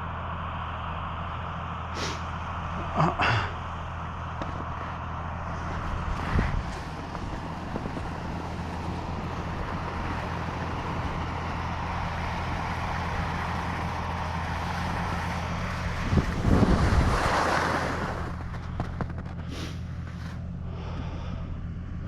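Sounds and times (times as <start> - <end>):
steady low hum: 0.0 - 22.0
wind rushing over microphone: 5.8 - 10.4, 15.8 - 19.0.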